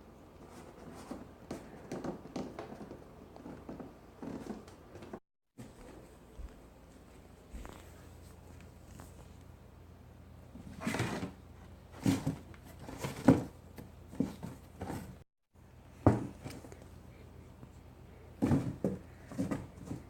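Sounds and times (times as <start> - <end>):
cats scuffling on cardboard box: 10.6 - 15.2, 18.4 - 20.0.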